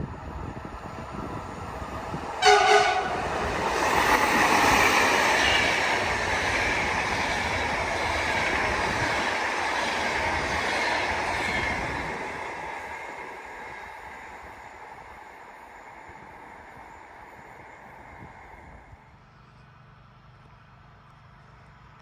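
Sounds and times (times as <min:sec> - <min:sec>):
train wheels on rails: 0:00.0 - 0:22.0
train horn blast: 0:02.4 - 0:03.4.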